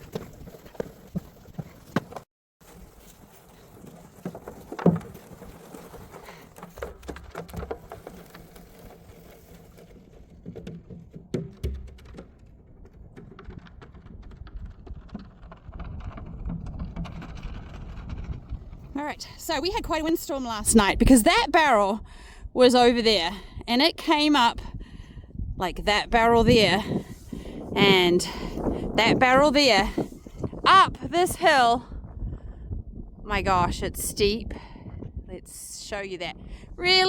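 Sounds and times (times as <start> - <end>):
knocks and clopping steps: 0.0 - 19.8
wind buffeting microphone: 12.5 - 37.0.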